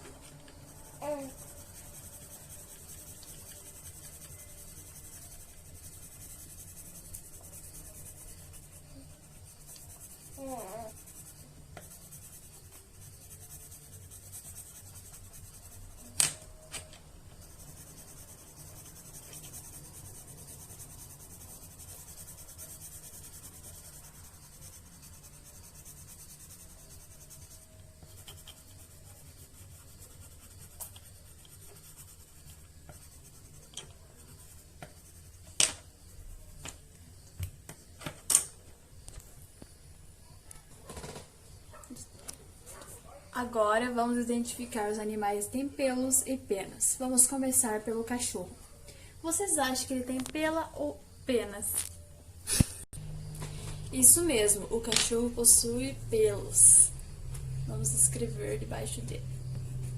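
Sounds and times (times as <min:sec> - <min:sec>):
writing on paper: 0:00.2 - 0:16.7, 0:17.3 - 0:36.6.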